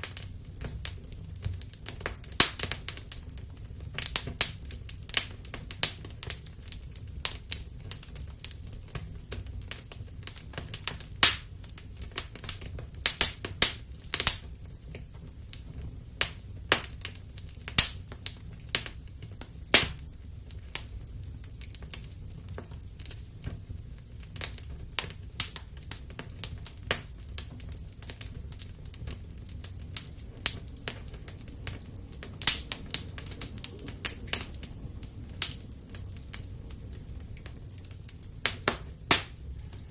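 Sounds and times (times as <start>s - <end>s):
fire crackling in fireplace: 0.0s - 39.9s
low steady rumble: 22.3s - 39.9s.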